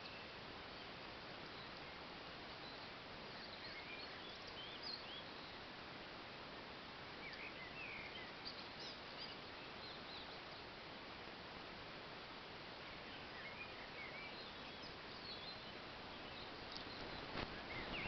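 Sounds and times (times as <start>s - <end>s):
small birds chirping: 0.0s - 5.8s, 6.8s - 11.0s, 11.9s - 18.0s
steady hiss: 0.0s - 18.0s.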